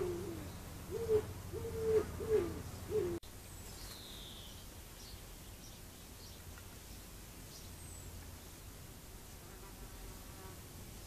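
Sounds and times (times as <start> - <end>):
bird cooing: 0.0 - 3.2
faint high bird chirp: 0.0 - 8.1.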